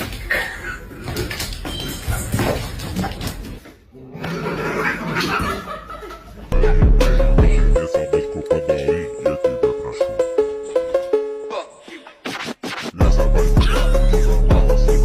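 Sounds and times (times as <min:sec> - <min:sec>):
indistinct voices: 0:07.0 - 0:10.2.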